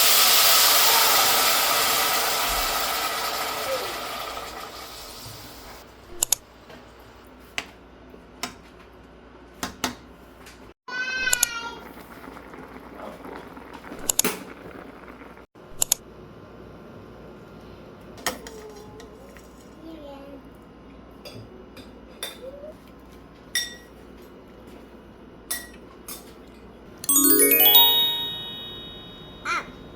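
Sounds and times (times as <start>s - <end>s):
rising glockenspiel chime run: 27.1s - 29.7s.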